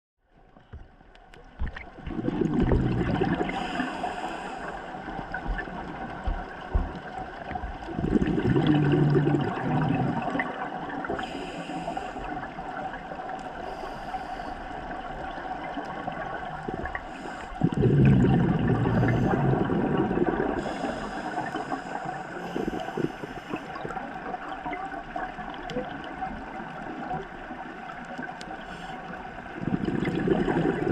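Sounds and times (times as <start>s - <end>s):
exhaled bubbles gurgling: 1.6s - 30.9s
regulator inhalation hiss: 3.5s - 5.2s, 11.2s - 12.4s, 13.6s - 14.7s, 20.6s - 23.8s.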